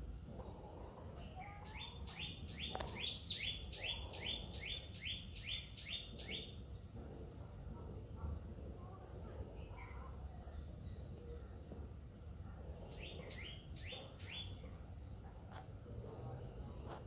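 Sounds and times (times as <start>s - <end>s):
bird chirping: 1.3s - 6.8s, 10.4s - 16.8s.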